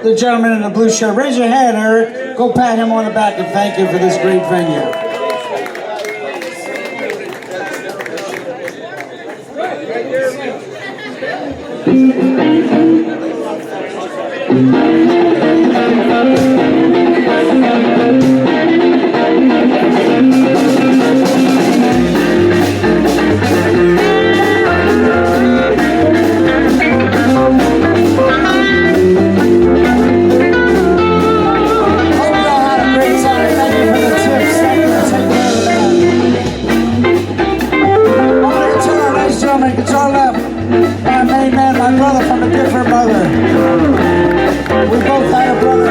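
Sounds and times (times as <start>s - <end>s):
guitar lines: 11.5s - 45.9s
bass guitar: 11.9s - 13.1s, 14.5s - 45.9s
drums: 14.5s - 45.9s.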